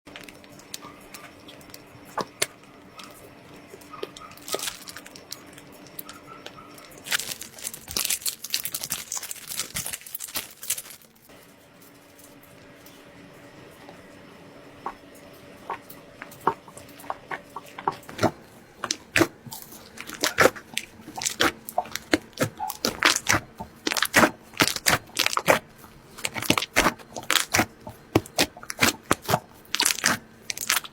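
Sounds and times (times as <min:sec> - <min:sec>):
slime crackling pops: 0:20.0 - 0:25.6, 0:26.2 - 0:30.9.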